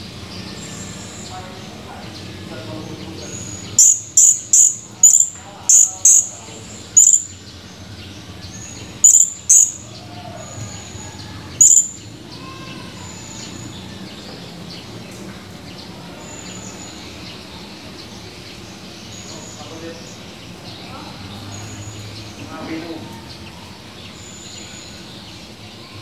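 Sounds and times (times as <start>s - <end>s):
parrot sharp high calls: 3.8s - 7.4s, 9.0s - 9.9s, 11.6s - 12.8s.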